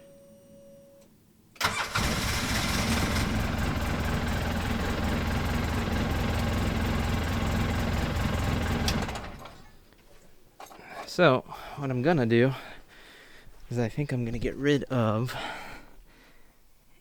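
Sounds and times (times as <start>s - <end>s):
vehicle engine idling: 1.6s - 9.7s.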